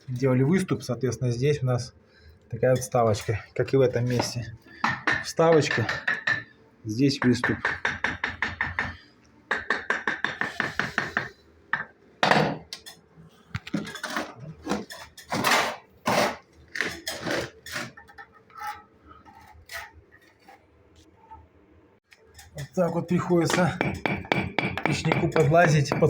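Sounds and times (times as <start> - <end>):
metal tool tapping bricks: 7.2 - 12.7, 22.4 - 26.0.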